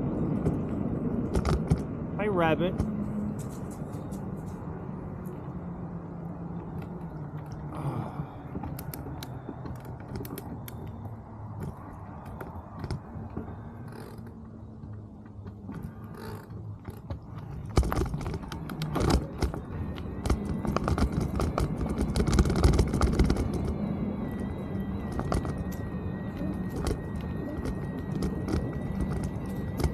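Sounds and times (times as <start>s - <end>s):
bike tyre hum: 0.0s - 29.9s
bike parts rattling and clicking: 8.6s - 23.8s.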